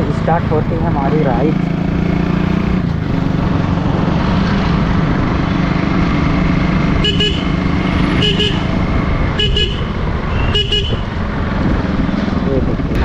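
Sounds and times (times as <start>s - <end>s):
motorcycle engine running: 0.0s - 13.0s
road and wind noise: 0.0s - 13.0s
vehicle horn double beeps: 7.0s - 7.6s, 8.2s - 8.7s, 9.4s - 11.1s.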